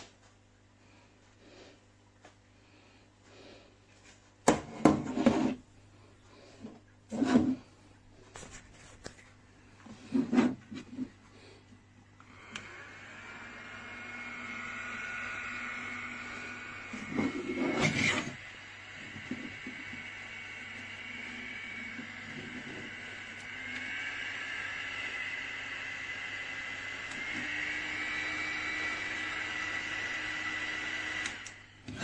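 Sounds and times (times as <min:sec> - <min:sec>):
small fan motor whirring: 0:12.2 - 0:32.0.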